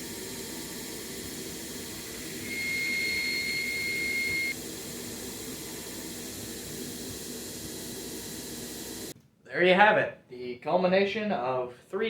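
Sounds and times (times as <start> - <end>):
gas forge burner roaring: 0.0 - 9.1
high whistling tone: 2.2 - 4.6.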